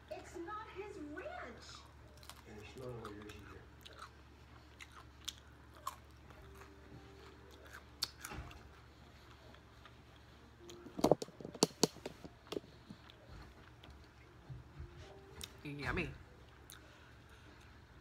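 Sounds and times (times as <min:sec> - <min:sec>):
person chewing soft food: 0:02.0 - 0:15.6, 0:16.3 - 0:18.0.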